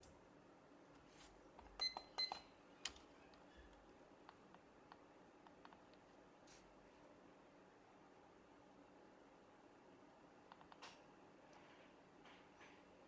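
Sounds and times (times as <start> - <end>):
electronic timer beeps: 1.8 - 2.5.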